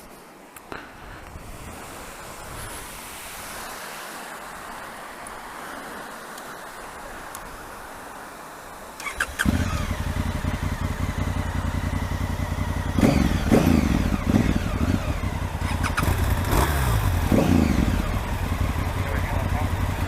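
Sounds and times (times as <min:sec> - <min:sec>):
motorcycle engine revving: 0:09.0 - 0:20.0.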